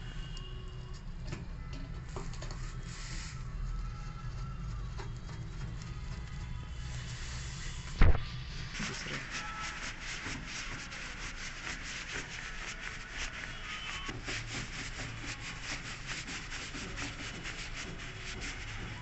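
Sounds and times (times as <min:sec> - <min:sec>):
rhythmic rubbing strokes: 0:04.6 - 0:19.0.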